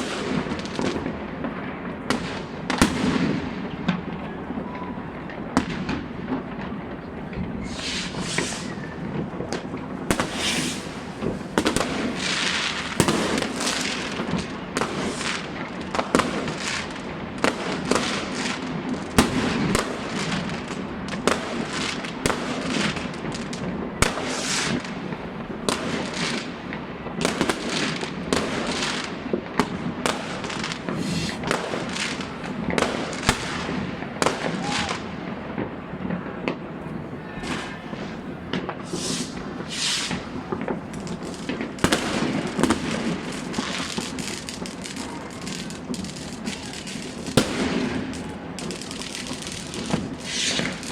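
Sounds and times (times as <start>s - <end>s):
firecrackers: 0.0s - 50.9s
fireworks bangs and cracks: 0.0s - 50.9s
hissing crackle: 7.6s - 15.5s, 30.1s - 32.4s, 37.4s - 50.9s.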